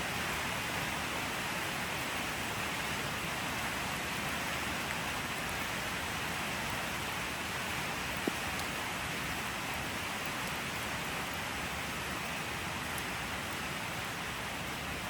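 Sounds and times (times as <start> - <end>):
rain hissing on surfaces: 0.0 - 15.0
faint drip ticks: 8.1 - 8.8, 9.6 - 11.4, 12.8 - 13.2.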